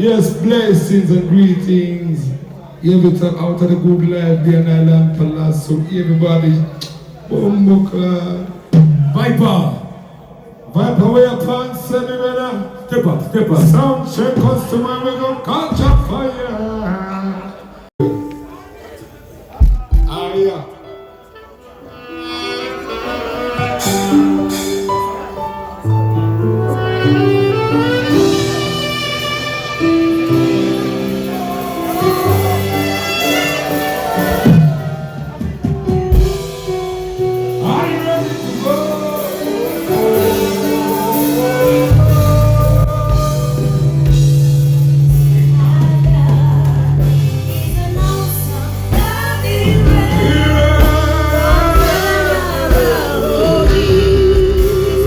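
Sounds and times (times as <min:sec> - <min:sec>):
live band music through pa: 0:00.0 - 0:55.0
person singing: 0:26.4 - 0:35.5, 0:37.4 - 0:55.0
steady bass line: 0:26.7 - 0:55.0.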